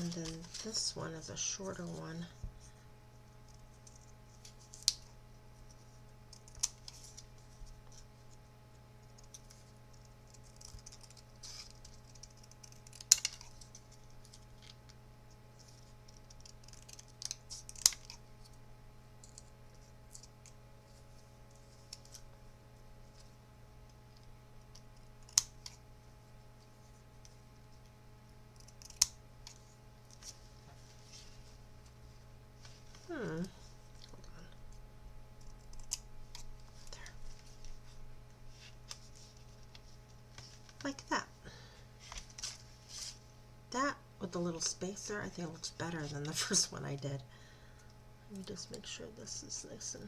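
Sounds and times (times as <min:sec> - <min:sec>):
soft paper rustling: 0:00.0 - 0:01.0, 0:29.4 - 0:34.2, 0:35.8 - 0:41.1, 0:41.9 - 0:43.3
steady low hum: 0:00.0 - 0:50.0.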